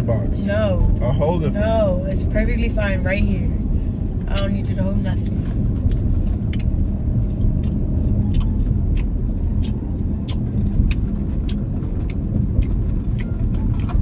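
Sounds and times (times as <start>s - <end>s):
road and engine rumble in car: 0.0s - 14.0s
person chewing noisily: 5.8s - 14.0s.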